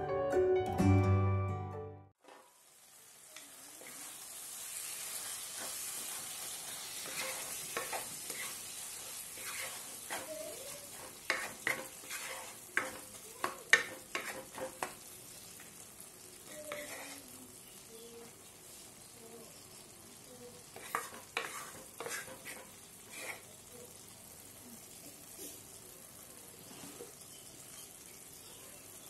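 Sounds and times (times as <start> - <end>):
food sizzling in a wok: 2.2 - 29.0
wooden spatula scraping pan: 5.1 - 15.0, 16.5 - 17.3, 20.7 - 23.5.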